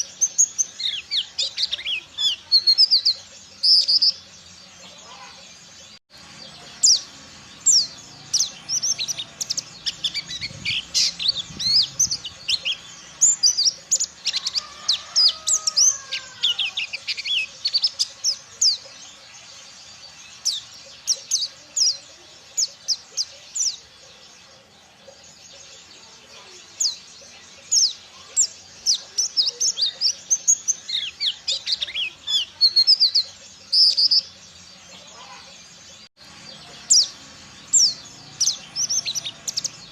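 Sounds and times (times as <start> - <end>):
bird singing fast high chirps: 6.3 - 19.2.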